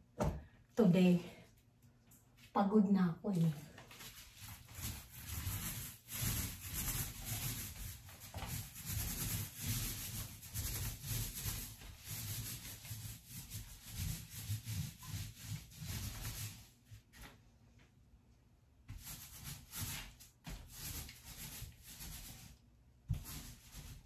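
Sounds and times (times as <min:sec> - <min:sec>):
paintbrush stroking on wood: 0:03.4 - 0:17.3, 0:18.9 - 0:24.0.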